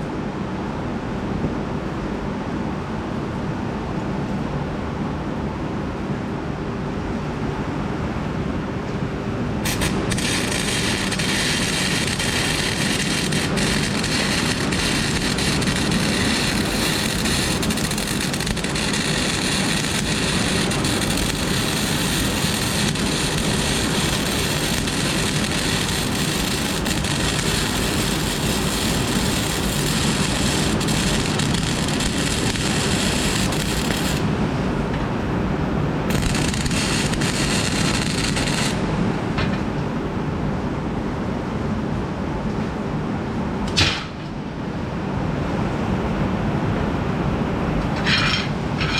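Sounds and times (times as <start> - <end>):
arc welding hiss: 9.6 - 34.4, 36.1 - 39.0.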